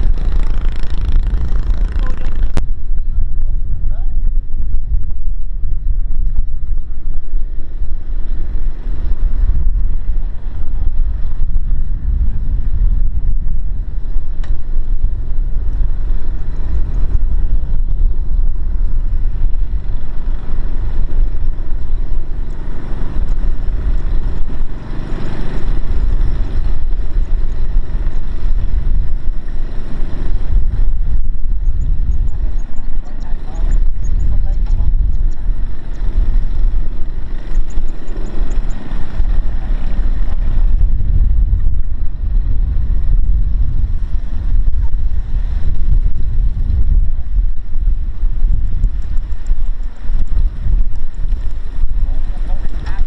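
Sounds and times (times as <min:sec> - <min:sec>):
heavy machine engine rumbling: 0:00.0 - 0:04.2.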